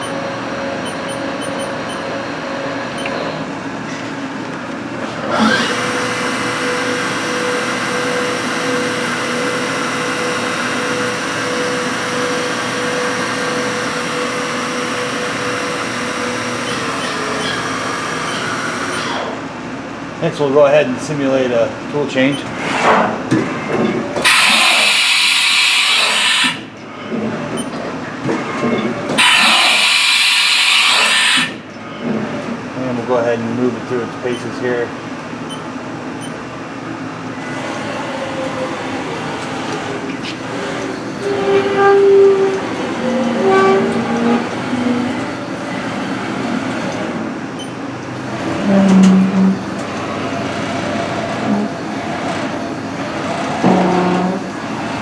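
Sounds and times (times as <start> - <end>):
machine mechanical hum: 0.0 - 55.0
tool changer mechanical sounds: 23.8 - 26.8, 28.5 - 31.7
compressed air hissing: 24.2 - 26.6, 29.2 - 31.6.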